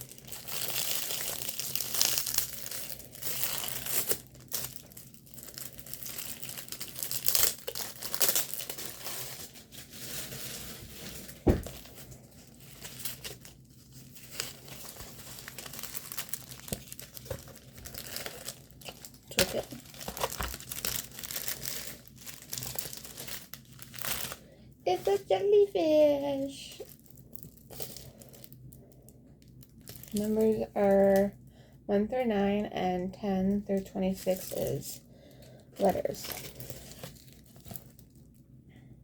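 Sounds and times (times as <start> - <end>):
packaging crinkling: 0.0 - 25.5, 26.7 - 31.3, 34.2 - 38.4
short thump: 11.4 - 11.8.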